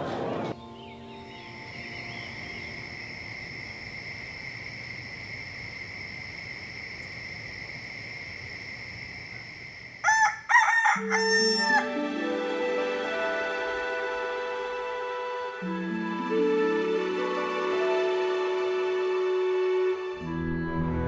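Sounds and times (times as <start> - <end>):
rooster crowing: 10.0 - 12.0.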